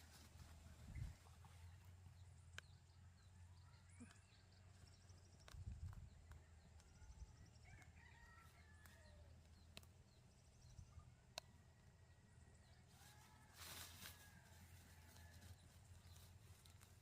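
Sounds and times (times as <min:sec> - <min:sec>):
faint chicken calls: 0:06.4 - 0:09.9, 0:11.4 - 0:17.0.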